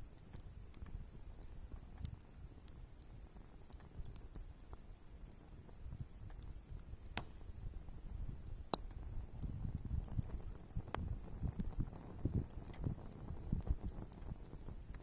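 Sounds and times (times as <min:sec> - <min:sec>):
wood fire crackling: 0:00.0 - 0:15.0
sharp wood snaps: 0:06.1 - 0:07.6, 0:08.2 - 0:09.0.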